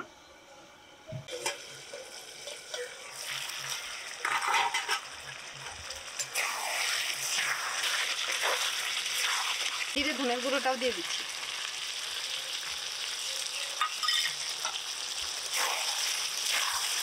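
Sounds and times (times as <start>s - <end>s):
chicken frying and sizzling: 1.2s - 17.0s
spatula scraping a pan: 4.2s - 5.1s.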